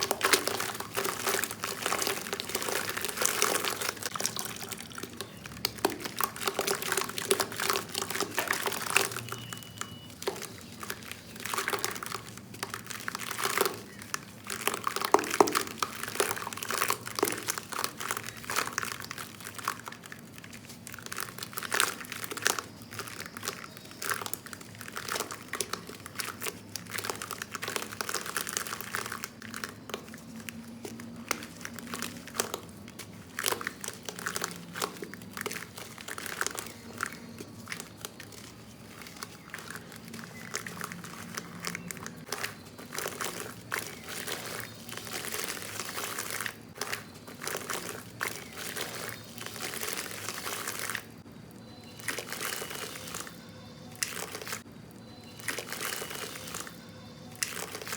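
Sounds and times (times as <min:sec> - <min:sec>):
sand clumps crunching: 0:31.2 - 0:57.9.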